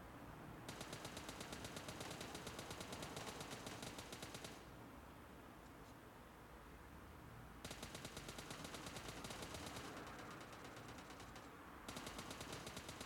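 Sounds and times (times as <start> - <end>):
rapid automatic gunfire: 0.7 - 4.6, 7.6 - 13.0.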